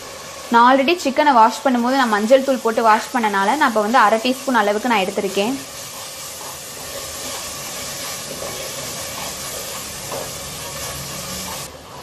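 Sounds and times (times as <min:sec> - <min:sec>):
food sizzling in oil: 0:00.0 - 0:12.0
wooden spatula stirring: 0:05.6 - 0:12.0.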